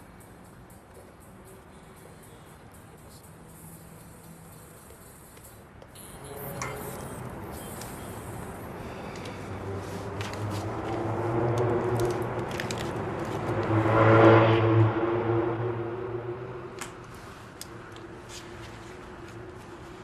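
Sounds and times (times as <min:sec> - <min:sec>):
car engine approaching: 0:07.0 - 0:20.0.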